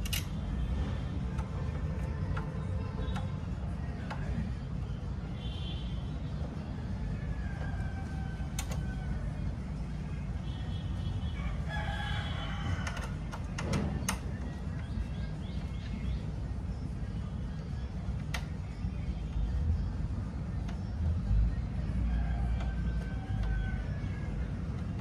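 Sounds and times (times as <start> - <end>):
sharp clicks: 0.0 - 0.4, 8.5 - 9.0, 18.2 - 18.7
rooster crowing: 7.3 - 9.3, 11.4 - 13.2, 22.1 - 24.3.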